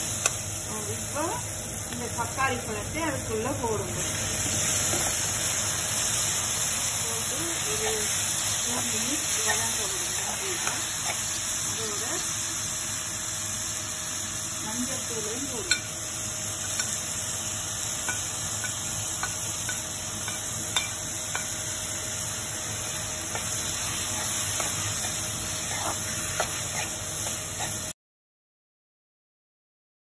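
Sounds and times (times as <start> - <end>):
vegetables sizzling in oil: 0.0 - 28.0
metal spoon scraping pan: 23.3 - 27.9.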